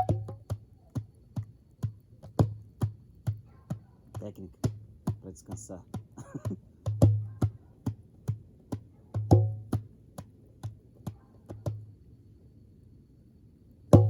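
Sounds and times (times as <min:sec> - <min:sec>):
djembe hand drum beat: 0:00.0 - 0:00.6, 0:04.1 - 0:07.6, 0:09.2 - 0:09.9.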